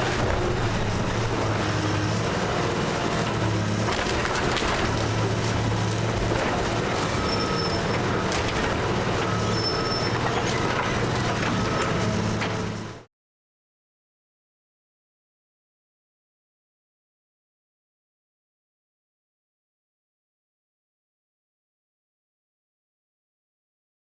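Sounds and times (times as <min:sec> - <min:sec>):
heavy machine engine running: 0:00.0 - 0:13.1
wood crunching and splintering: 0:03.6 - 0:09.2.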